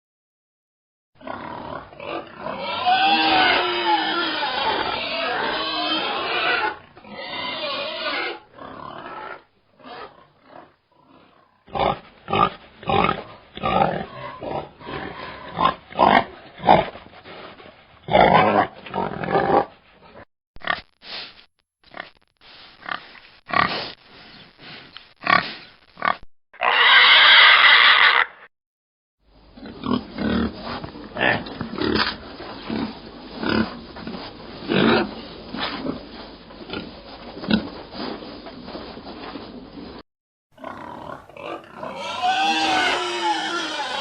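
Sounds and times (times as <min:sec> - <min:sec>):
pigs grunting: 0:01.2 - 0:20.8, 0:29.5 - 0:38.6, 0:40.6 - 0:44.0.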